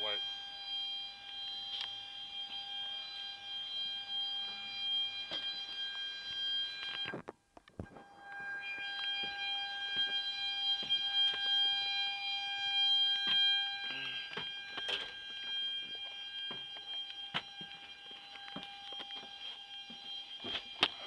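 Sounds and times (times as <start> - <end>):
high-pitched equipment whine: 7.8 - 21.0.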